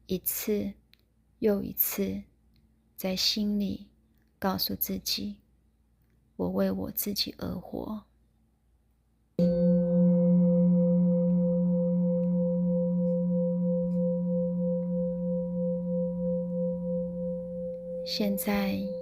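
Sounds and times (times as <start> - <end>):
singing bowl ringing: 9.4 - 19.0.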